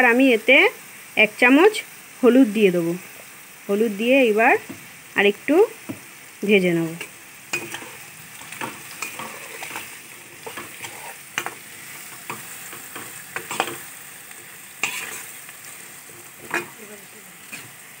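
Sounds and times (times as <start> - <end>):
potatoes sizzling in oil: 0.0 - 18.0
spatula scraping pan: 7.5 - 16.8.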